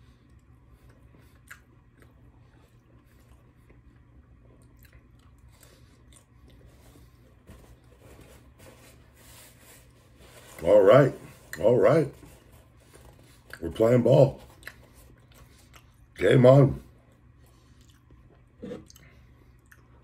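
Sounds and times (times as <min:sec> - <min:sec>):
faint chewing: 0:00.0 - 0:07.9, 0:14.4 - 0:16.2, 0:16.9 - 0:20.0.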